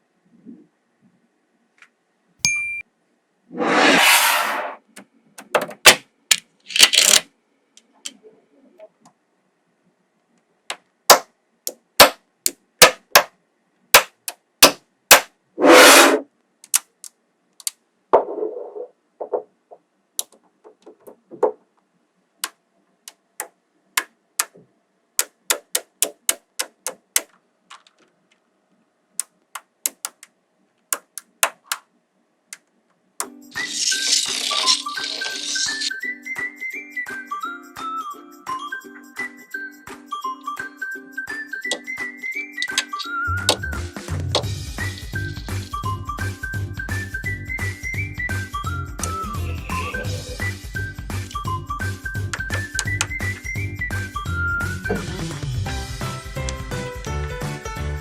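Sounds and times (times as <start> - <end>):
magnetic balls clicking: 29.2 - 30.3, 32.5 - 35.9.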